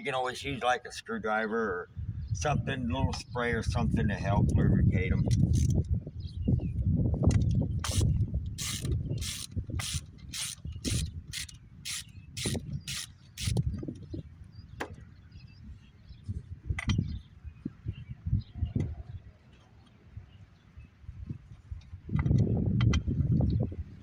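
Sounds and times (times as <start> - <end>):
socket ratchet wrench clicking: 5.3 - 5.9, 7.8 - 13.6.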